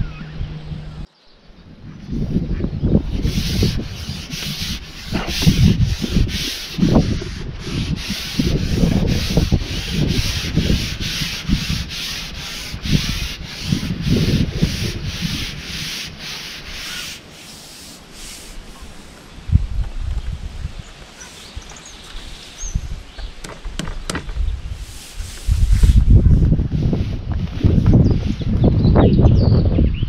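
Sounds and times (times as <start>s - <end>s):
wind buffeting microphone: 0.0s - 30.0s
rhythmic rubbing or scraping: 2.3s - 19.3s, 24.7s - 28.6s.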